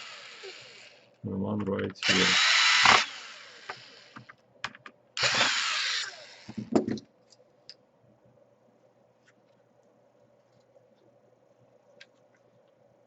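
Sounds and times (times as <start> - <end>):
electric screwdriver running: 0.0 - 1.0, 2.0 - 4.3, 5.2 - 6.6
knocks: 6.5 - 7.0.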